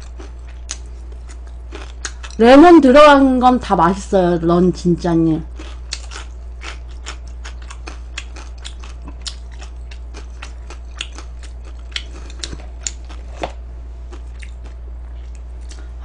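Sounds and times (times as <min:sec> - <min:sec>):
crunching and chewing fried chicken: 0:00.0 - 0:02.5, 0:05.4 - 0:16.0
low hum: 0:00.0 - 0:16.0.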